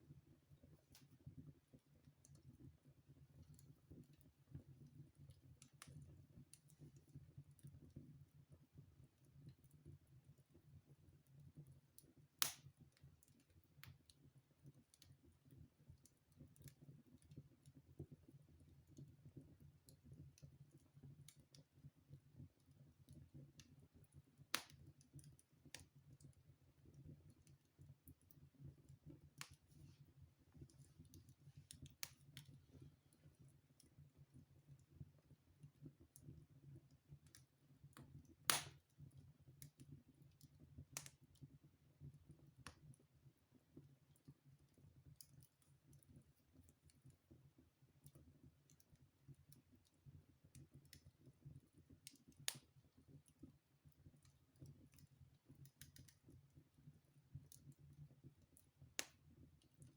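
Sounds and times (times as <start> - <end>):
low rumble of burning fire: 0.0 - 59.9
wood fire crackling: 12.0 - 21.6, 22.2 - 41.4, 43.8 - 56.6, 57.4 - 59.9
fire snapping: 12.4 - 12.7, 30.8 - 32.8, 38.5 - 38.8, 52.0 - 52.6, 55.8 - 56.1, 59.0 - 59.2.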